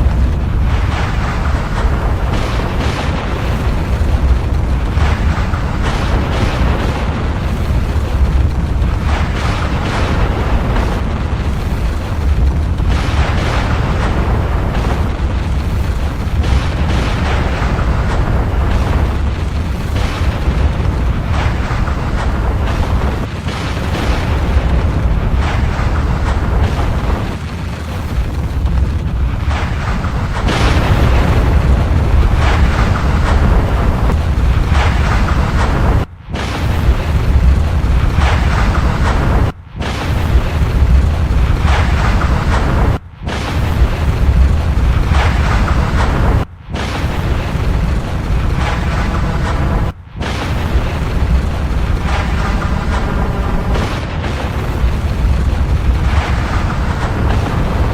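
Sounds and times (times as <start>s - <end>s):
volcano rumbling with rushing surges: 0.0s - 57.9s.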